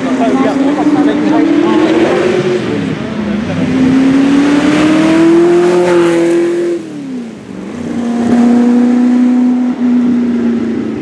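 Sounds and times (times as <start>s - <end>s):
race car engine accelerating: 0.0s - 11.0s.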